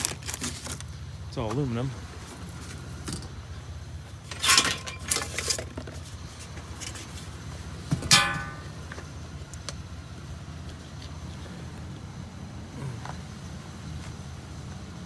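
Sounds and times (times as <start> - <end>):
aluminum scraping rattles: 4.2 - 9.0
metal clank ringing: 4.3 - 5.3, 7.9 - 9.0
steady low hum: 7.5 - 9.4.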